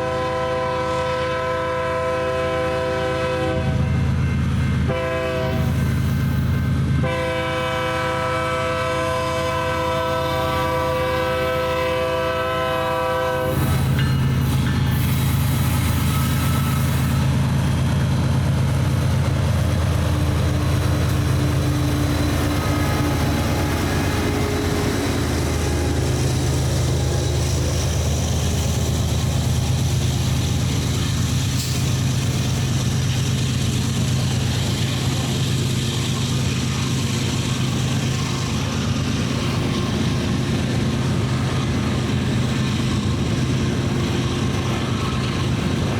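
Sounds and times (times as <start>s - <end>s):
train horn: 0.0s - 5.9s, 7.0s - 13.9s, 20.1s - 27.6s
diesel locomotives humming: 0.0s - 45.9s
rolling train noise: 0.0s - 45.9s.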